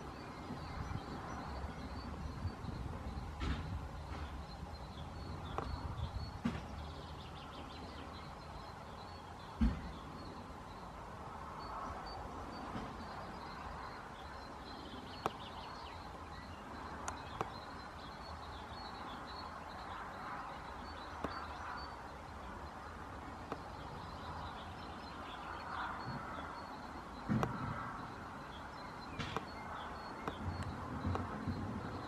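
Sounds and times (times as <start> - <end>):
sparrows chirping: 0.0 - 32.0
sharp clicks: 16.8 - 17.9, 29.0 - 32.0.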